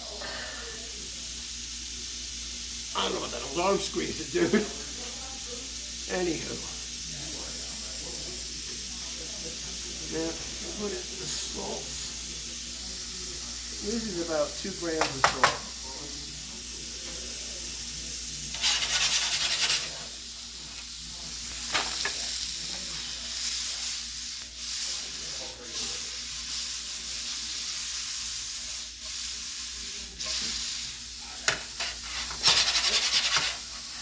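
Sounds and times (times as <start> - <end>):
mushrooms sizzling in frying pan: 0.8 - 34.0
utensil stirring: 9.7 - 17.8, 18.4 - 34.0.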